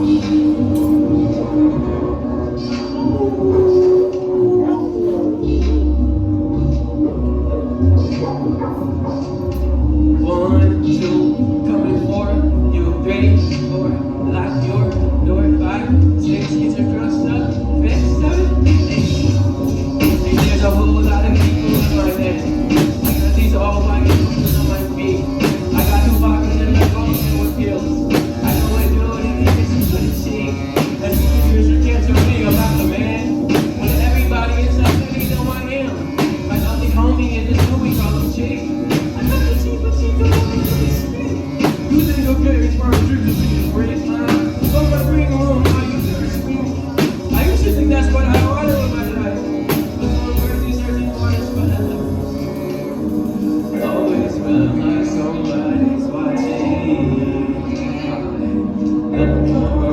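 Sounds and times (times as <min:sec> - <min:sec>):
person singing: 0:00.0 - 0:59.9
beat with heavy bass: 0:17.6 - 0:52.3.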